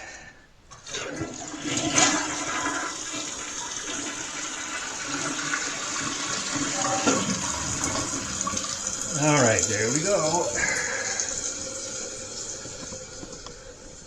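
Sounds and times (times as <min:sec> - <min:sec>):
toilet flushing: 0:00.7 - 0:14.0.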